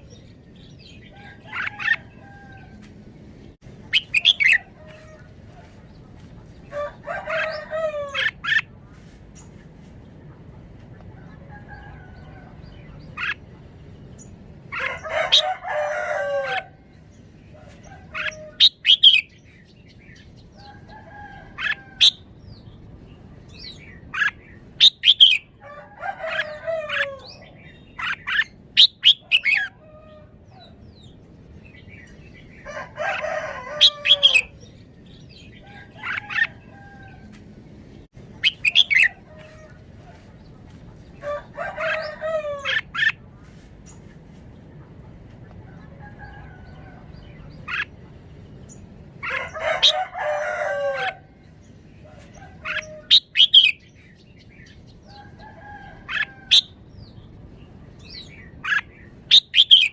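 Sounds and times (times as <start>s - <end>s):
rooster calls: 1.1s - 2.9s, 6.7s - 8.6s, 14.7s - 16.8s, 25.2s - 28.4s, 32.6s - 34.6s, 35.6s - 37.4s, 41.2s - 43.1s, 49.2s - 51.4s
bulbul singing whistled phrases: 3.9s - 4.7s.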